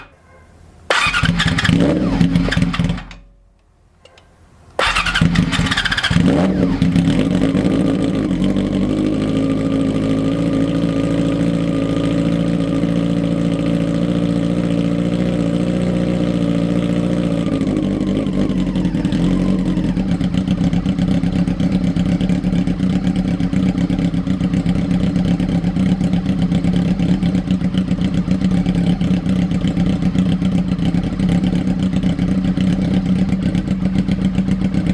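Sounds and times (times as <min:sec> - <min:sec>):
motorcycle engine revving and idling: 0:00.9 - 0:03.3, 0:04.8 - 0:34.9.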